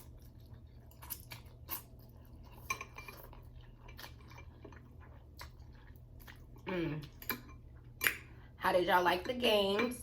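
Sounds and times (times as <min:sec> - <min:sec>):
soft eating sounds: 0:00.0 - 0:10.0
utensils clinking against bowl: 0:02.4 - 0:04.7.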